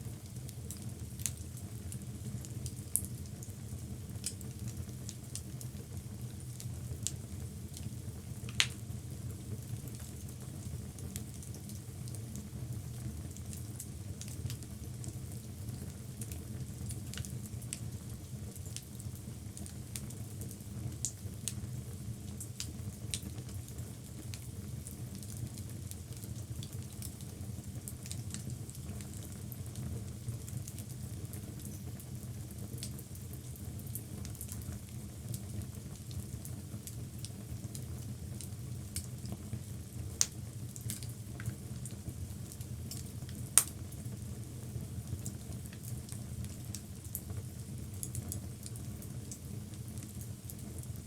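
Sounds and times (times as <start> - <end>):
low rumble of flame: 0.0 - 51.0
wood fire crackling and popping: 0.2 - 51.0.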